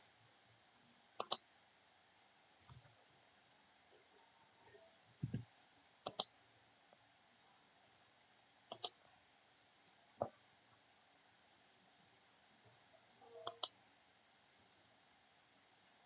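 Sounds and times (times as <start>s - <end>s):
computer mouse button clicks: 1.2s - 1.4s, 6.1s - 6.3s, 8.7s - 9.0s, 13.4s - 13.8s.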